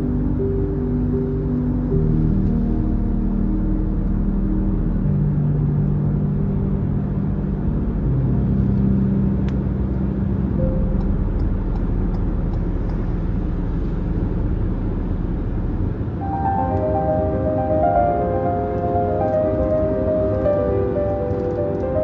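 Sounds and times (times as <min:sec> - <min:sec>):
ambient music drone: 0:00.0 - 0:22.0
car driving on wet road: 0:07.0 - 0:22.0.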